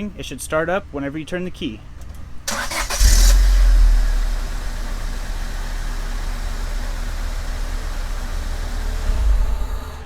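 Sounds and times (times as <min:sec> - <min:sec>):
car engine idling: 0:02.3 - 0:10.0.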